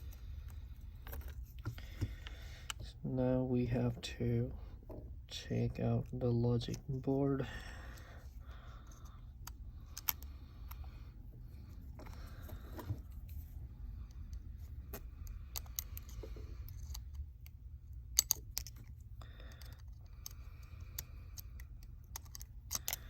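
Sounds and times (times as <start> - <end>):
small tools clicking on phone parts: 8.8 - 10.9, 14.0 - 23.0.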